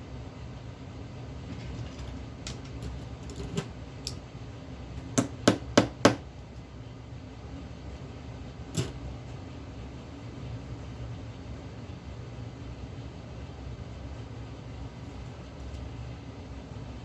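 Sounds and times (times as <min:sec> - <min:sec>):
steady low hum: 0:00.0 - 0:17.0
clicks of tools and metal parts: 0:08.8 - 0:09.0.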